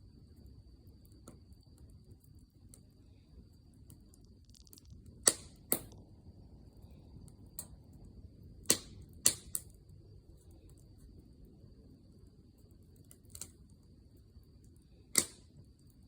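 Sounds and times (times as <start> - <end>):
low rumble of burning fire: 0.0 - 16.0
wood fire crackling: 0.0 - 16.0
loud sharp pops of fire: 3.8 - 6.1, 8.6 - 9.9, 13.0 - 13.7, 14.7 - 16.0.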